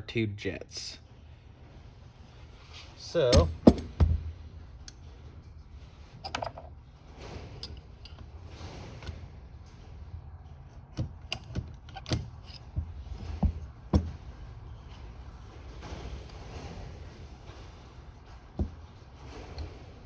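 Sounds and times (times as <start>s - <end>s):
metal parts clicking and clinking: 3.1s - 4.0s, 6.0s - 6.8s, 10.9s - 13.4s.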